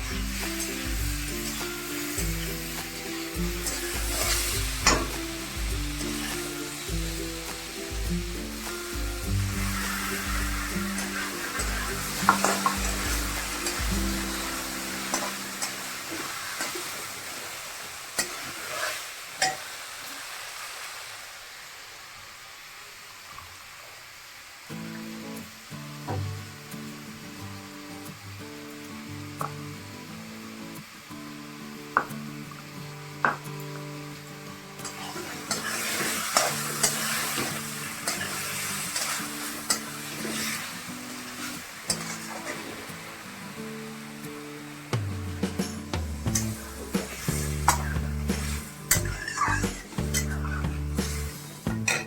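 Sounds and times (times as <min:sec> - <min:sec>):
food sizzling in a hot pan: 0:00.0 - 0:52.0
spatula scraping a pan: 0:03.6 - 0:06.8, 0:09.6 - 0:17.4, 0:18.2 - 0:19.6, 0:34.8 - 0:40.7, 0:41.4 - 0:42.8, 0:45.6 - 0:52.0.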